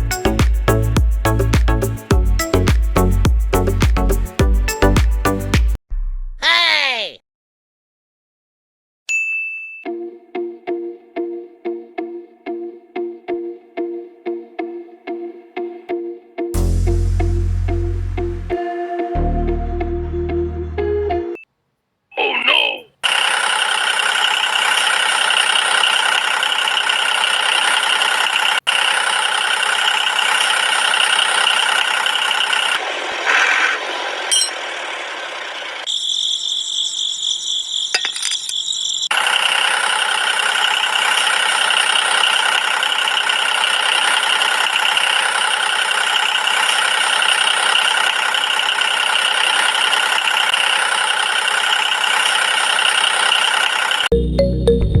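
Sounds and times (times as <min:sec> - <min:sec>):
power tool running on wood: 0:23.0 - 0:35.9, 0:39.1 - 0:54.1.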